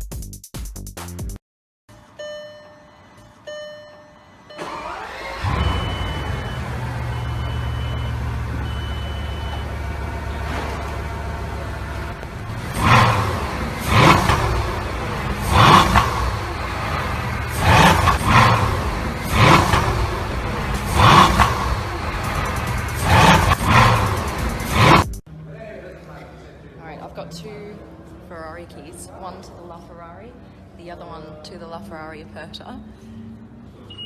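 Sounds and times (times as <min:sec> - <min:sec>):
car engine idling: 0:04.6 - 0:25.2
car engine revving: 0:04.6 - 0:25.3
warning beeps: 0:05.4 - 0:09.9.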